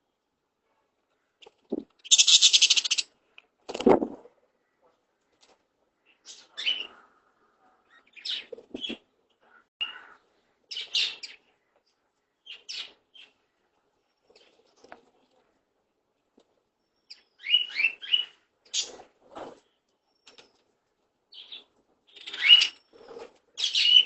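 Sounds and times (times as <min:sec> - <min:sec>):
parrot chirping: 0:02.0 - 0:03.1.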